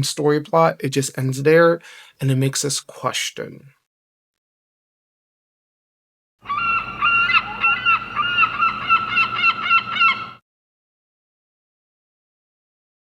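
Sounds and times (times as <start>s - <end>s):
birds calling harshly: 6.4s - 10.4s.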